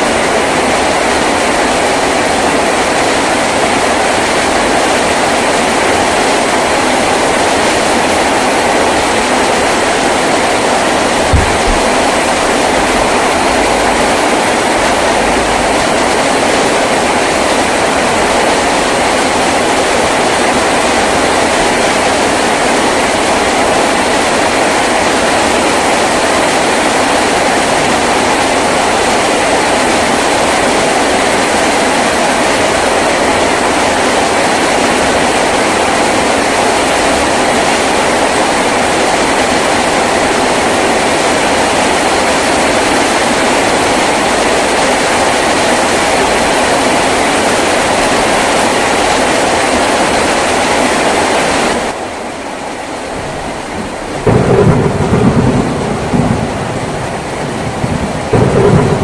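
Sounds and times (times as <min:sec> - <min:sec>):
heavy rain on a tin roof: 0:00.0 - 0:59.0.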